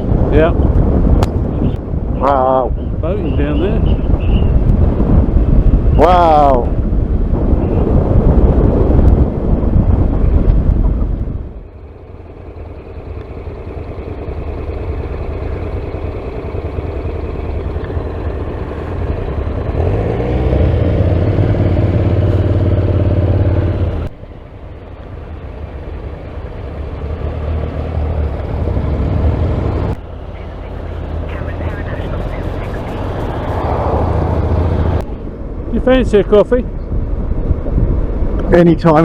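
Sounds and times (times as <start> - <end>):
wind rush: 0.0 - 11.8, 25.8 - 39.0
motorcycle engine running: 0.0 - 39.0.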